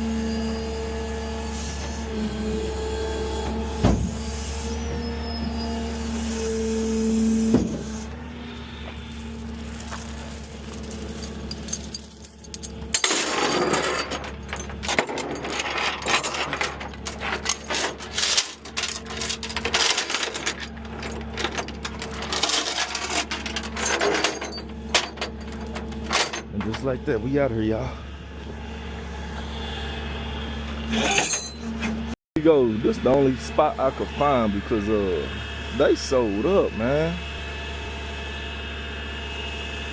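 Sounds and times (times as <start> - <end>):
vehicle engine humming: 8.1 - 13.0
metallic rattling and clinking: 8.8 - 26.5.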